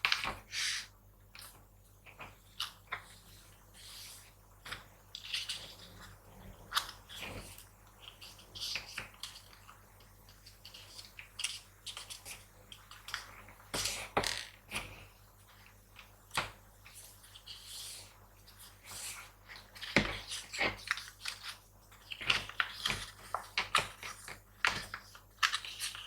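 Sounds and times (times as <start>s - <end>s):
paper crinkling and rustling: 16.8s - 26.0s.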